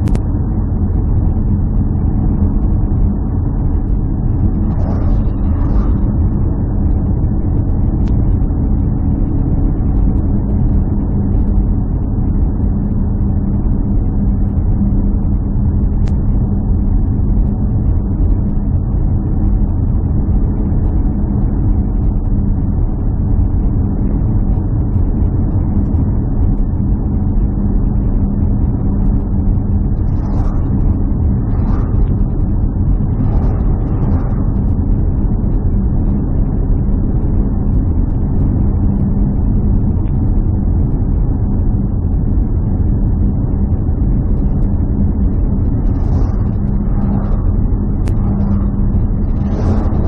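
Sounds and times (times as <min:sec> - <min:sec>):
low engine drone: 0:00.0 - 0:50.0.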